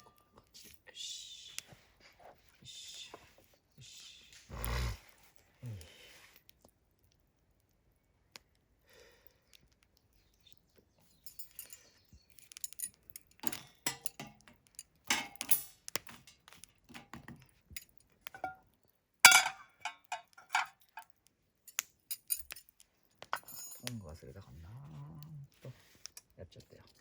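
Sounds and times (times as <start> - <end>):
metal cookware clinking: 13.4 - 14.5, 15.1 - 18.7, 19.3 - 21.1, 23.4 - 23.9.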